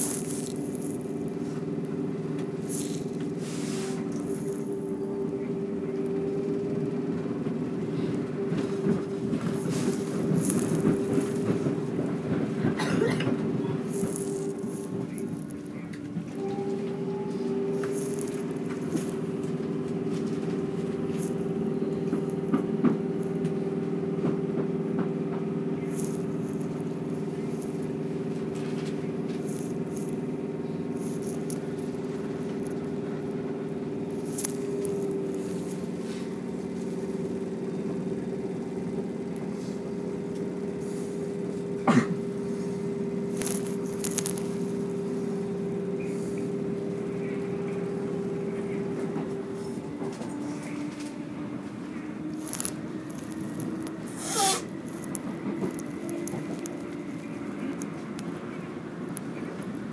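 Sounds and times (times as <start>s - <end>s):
sharp clicks and rattles: 0.0s - 3.4s, 8.5s - 16.6s, 17.7s - 33.4s, 34.0s - 40.6s, 43.3s - 44.8s, 52.3s - 59.9s
train interior drone: 0.0s - 59.9s.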